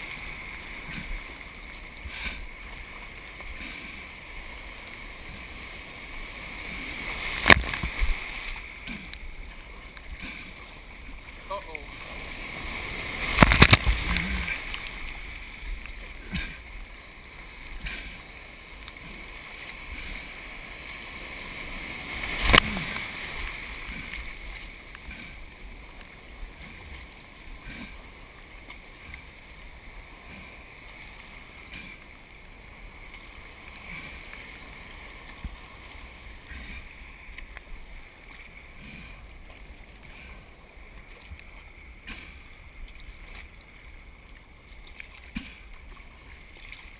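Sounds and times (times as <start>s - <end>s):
water sloshing around kayak: 0.0s - 46.9s
loud splashes: 11.9s - 15.1s, 21.3s - 24.2s.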